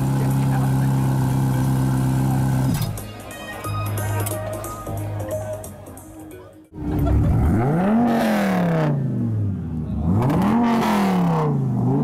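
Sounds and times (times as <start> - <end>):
car engine revving: 6.8 - 12.0.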